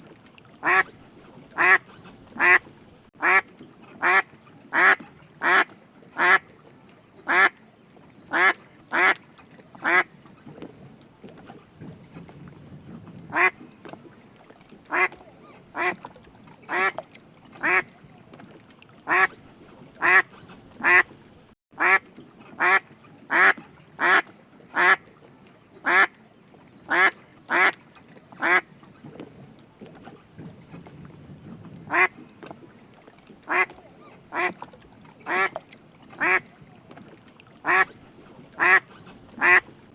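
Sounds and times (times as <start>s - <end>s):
duck quacking: 0.6s - 0.9s, 1.6s - 2.6s, 3.2s - 3.4s, 4.0s - 6.4s, 7.3s - 7.5s, 8.3s - 9.2s, 9.8s - 10.1s, 13.3s - 13.6s, 14.9s - 15.2s, 15.8s - 16.0s, 16.7s - 17.0s, 17.6s - 17.9s, 19.1s - 19.3s, 20.0s - 21.1s, 21.8s - 22.0s, 22.6s - 24.2s, 24.8s - 25.0s, 25.8s - 26.1s, 26.9s - 27.8s, 28.4s - 28.6s, 31.9s - 32.1s, 33.5s - 34.6s, 35.3s - 35.5s, 36.2s - 36.4s, 37.6s - 37.9s, 38.6s - 39.7s.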